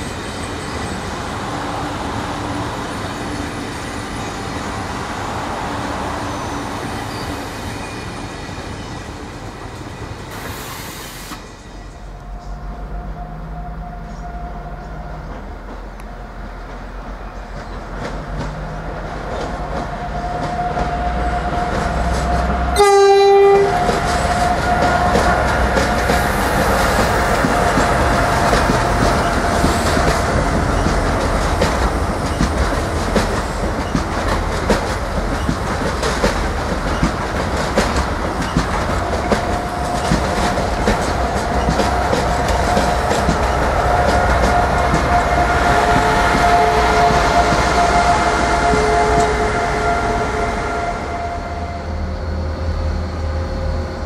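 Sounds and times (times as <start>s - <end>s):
train rumble: 0.0s - 54.0s
train horn blast: 20.1s - 26.6s, 42.2s - 52.2s
wheels clattering over rail joints: 26.9s - 47.8s.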